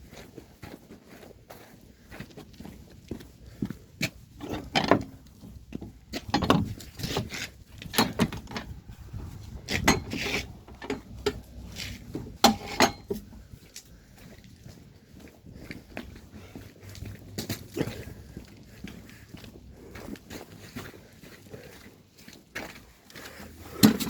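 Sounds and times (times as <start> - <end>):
hard objects knocking and clattering: 4.4 - 8.9, 9.6 - 11.4, 12.0 - 13.3.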